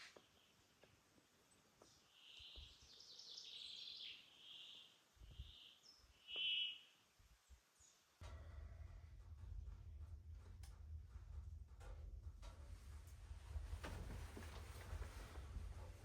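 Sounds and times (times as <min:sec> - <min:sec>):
bird calling faintly: 0:01.8 - 0:07.0.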